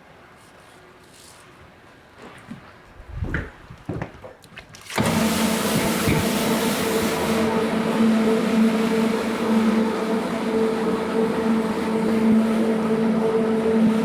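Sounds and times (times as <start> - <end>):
carpet cleaning machine motor: 5.0 - 14.0.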